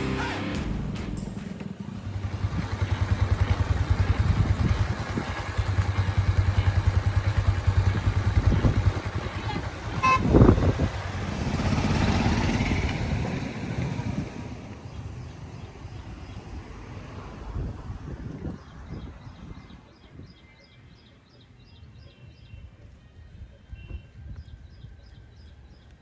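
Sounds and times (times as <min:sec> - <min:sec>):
motorcycle engine rumbling: 0:00.0 - 0:19.8
vehicle horn toot: 0:09.3 - 0:10.8.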